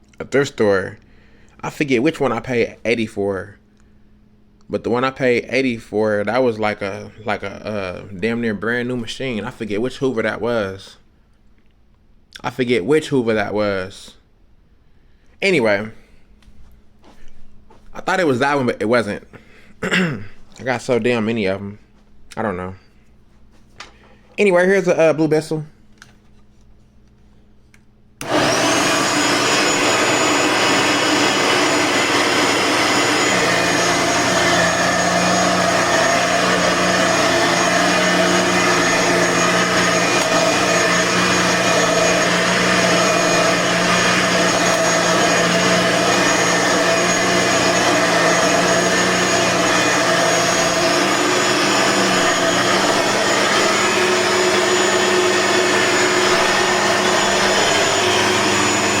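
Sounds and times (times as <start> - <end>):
vacuum cleaner motor whining: 28.2 - 59.0.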